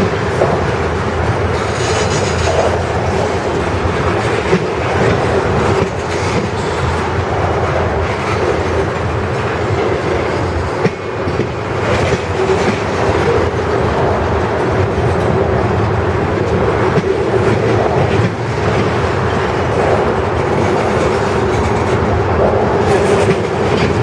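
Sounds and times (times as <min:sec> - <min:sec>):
freight train cars rumbling past: 0:00.0 - 0:24.0
wheels clacking over rail joints: 0:00.0 - 0:24.0.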